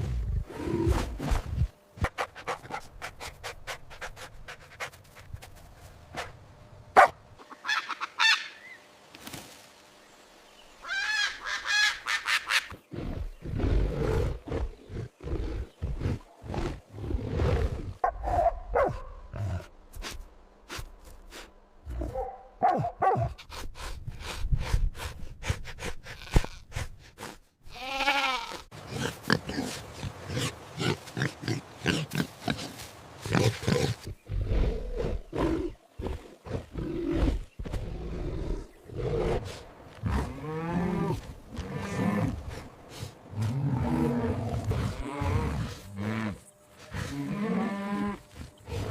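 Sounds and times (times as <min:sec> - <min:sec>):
pigs grunting: 0:28.8 - 0:48.9.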